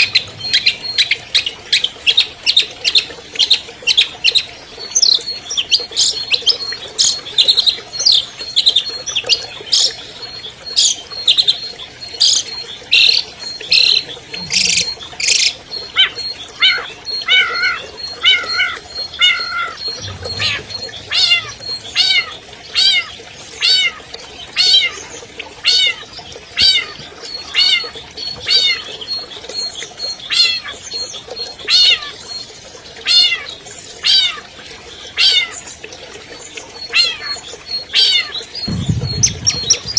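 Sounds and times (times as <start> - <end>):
downward-sliding bird whistles: 0.0 - 1.6, 19.3 - 23.1, 38.7 - 39.9
harsh scratchy bird notes: 38.7 - 39.9.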